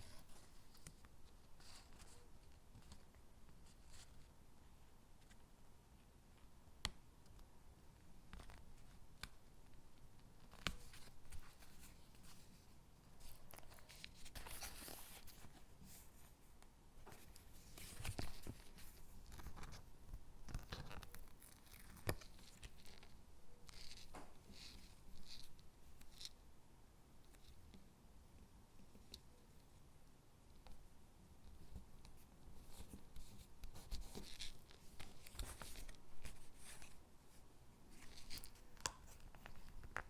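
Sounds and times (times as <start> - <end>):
paper rustling and peeling: 10.4 - 16.3, 17.1 - 26.3, 31.6 - 37.0.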